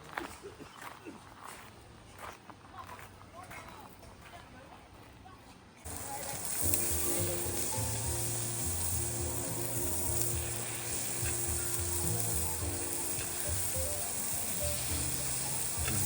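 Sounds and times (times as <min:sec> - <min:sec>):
food sizzling in a pan: 0:05.9 - 0:16.0
soft background music: 0:05.9 - 0:16.0
stirring in a pan: 0:05.9 - 0:16.0.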